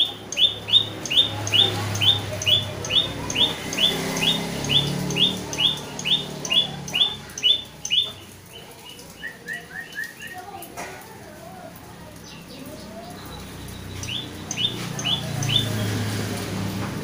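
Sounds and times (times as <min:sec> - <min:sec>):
bird chirping: 0:00.0 - 0:10.6, 0:12.2 - 0:16.6.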